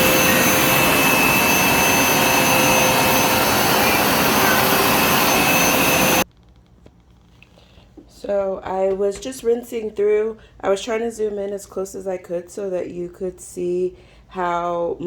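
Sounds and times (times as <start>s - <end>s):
carpet cleaner suction whine: 0.0s - 6.2s.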